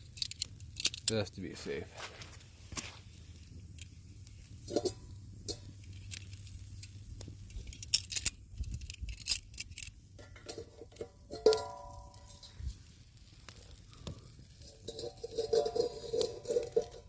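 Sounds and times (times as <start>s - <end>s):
metal pot clinking: 4.6s - 5.7s, 10.2s - 12.7s, 14.6s - 17.0s.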